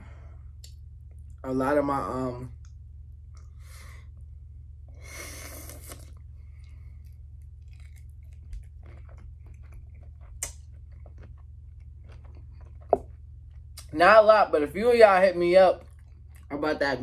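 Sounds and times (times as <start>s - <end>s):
steady low hum: 0.0s - 17.0s
chewing shrimp: 5.6s - 13.9s, 15.8s - 16.5s.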